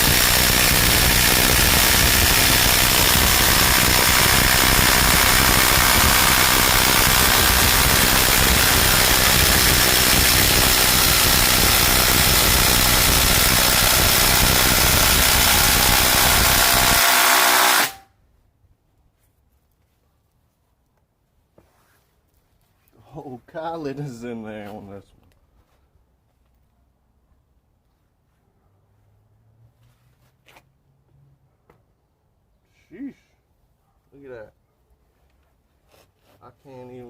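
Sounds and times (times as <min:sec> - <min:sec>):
impact drivers boring into wood: 0:00.0 - 0:18.0.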